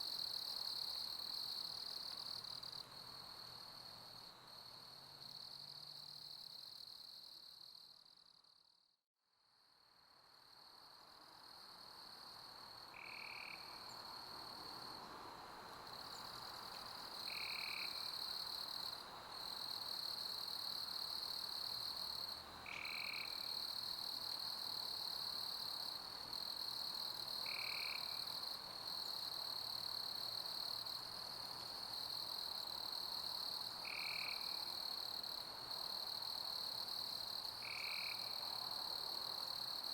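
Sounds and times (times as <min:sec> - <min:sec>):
crickets chirping: 0:10.3 - 0:39.9.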